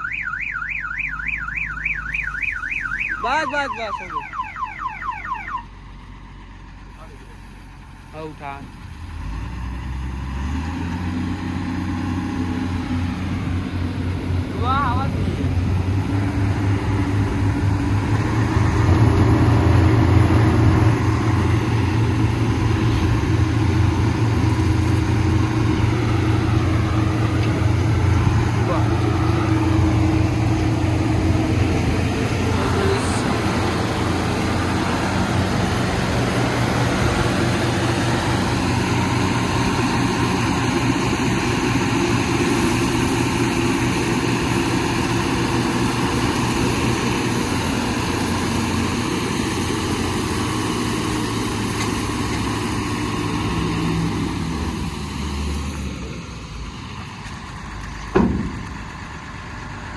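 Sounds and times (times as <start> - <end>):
heavy diesel engine running: 0.0 - 59.9
sharp knock: 58.2 - 58.6.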